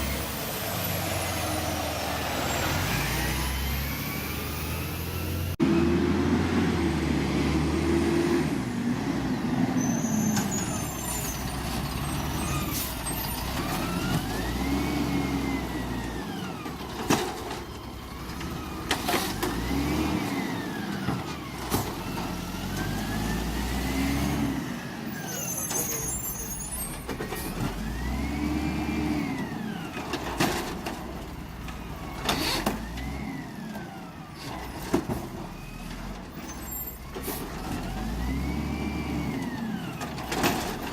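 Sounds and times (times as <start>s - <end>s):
garbage truck engine revving: 0.0s - 26.0s, 27.0s - 40.9s
brief high squeaks: 9.8s - 13.5s, 25.2s - 27.2s.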